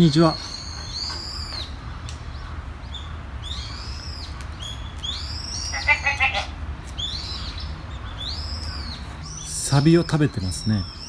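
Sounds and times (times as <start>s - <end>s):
bird high arching call: 0.0s - 11.0s.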